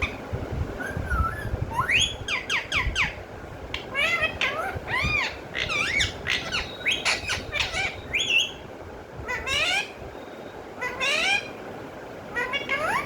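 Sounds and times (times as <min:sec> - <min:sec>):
parrot squawking: 0:00.0 - 0:00.2, 0:01.7 - 0:08.6, 0:09.2 - 0:10.0, 0:10.8 - 0:11.6, 0:12.3 - 0:13.0.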